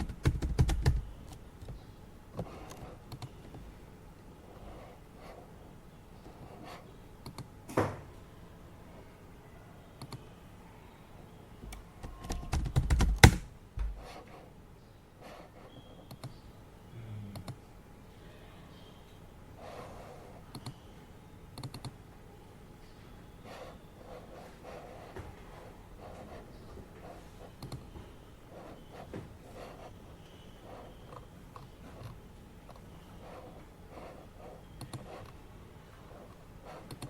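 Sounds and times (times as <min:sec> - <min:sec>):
typing on computer keyboard: 0:00.0 - 0:01.1, 0:12.0 - 0:13.4, 0:21.6 - 0:22.0.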